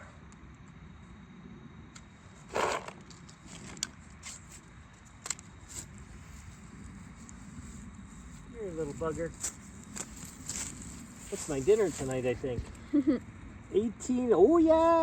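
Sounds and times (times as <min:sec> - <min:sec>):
rustling scuffle: 0:05.6 - 0:12.8.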